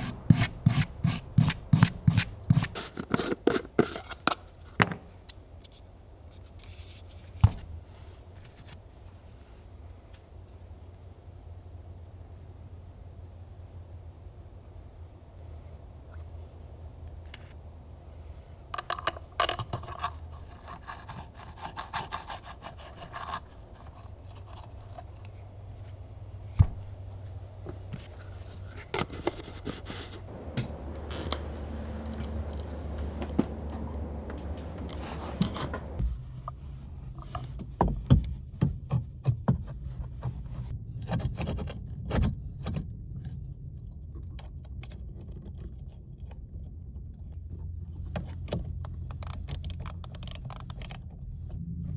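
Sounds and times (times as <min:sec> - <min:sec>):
scraping and rubbing: 0:00.0 - 0:04.4, 0:19.2 - 0:26.0, 0:27.9 - 0:36.0
steady low hum: 0:30.2 - 0:36.0.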